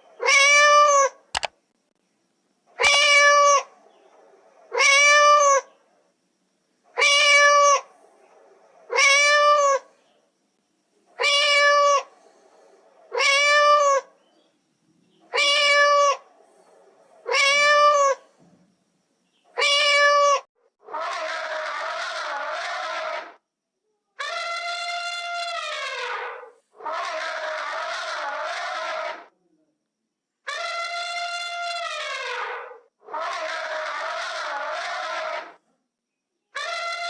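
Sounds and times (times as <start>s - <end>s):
cat meowing: 0.2s - 1.2s, 2.8s - 3.7s, 4.7s - 5.6s, 7.0s - 7.8s, 8.9s - 9.8s, 11.2s - 12.1s, 13.1s - 14.1s, 15.3s - 16.2s, 17.3s - 18.2s, 19.6s - 20.4s
harsh sustained cat call: 0.2s - 1.5s, 2.8s - 3.7s, 7.0s - 7.9s, 11.2s - 12.1s, 13.1s - 14.1s, 15.3s - 16.2s, 19.6s - 23.4s, 24.2s - 29.3s, 30.5s - 35.6s, 36.6s - 37.0s.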